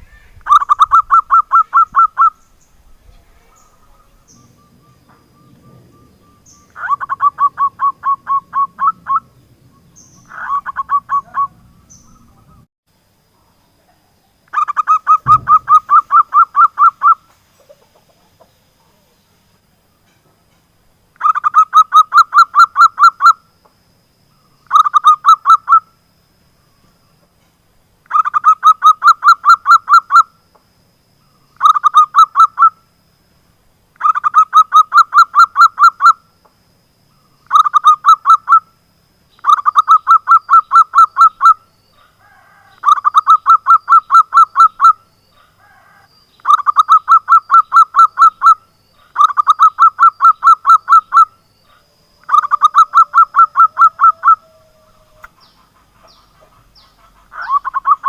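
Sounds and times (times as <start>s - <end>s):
dove cooing: 3.1s - 9.4s, 10.0s - 12.7s, 14.5s - 19.0s, 39.4s - 58.0s.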